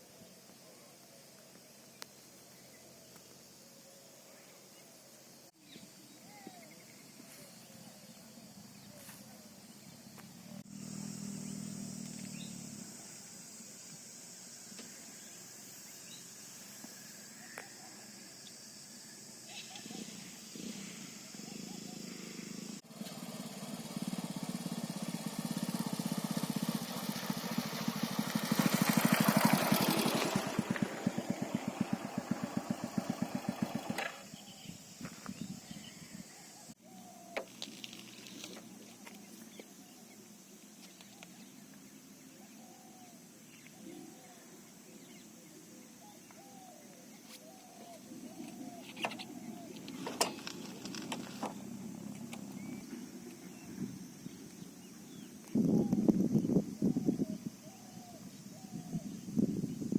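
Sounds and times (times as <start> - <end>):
faint bird chirps: 0.0 - 13.7, 14.7 - 22.8, 30.9 - 59.9
small engine putt-putt: 7.7 - 15.3, 19.5 - 35.8, 37.3 - 39.9, 47.2 - 55.6
low motor hum: 19.8 - 34.7.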